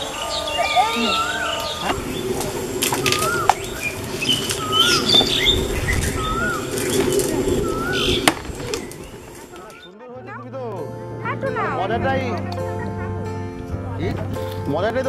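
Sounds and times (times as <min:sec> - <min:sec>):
steady low hum: 0:00.0 - 0:09.7
bird whistling: 0:00.0 - 0:10.0
birds chirping: 0:00.0 - 0:15.0.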